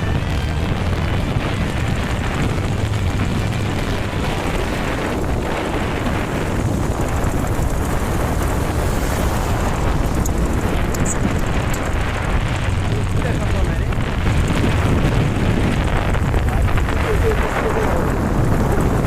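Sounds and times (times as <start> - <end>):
motorcycle engine running: 0.0 - 19.0
wind rushing over microphone: 0.0 - 19.0.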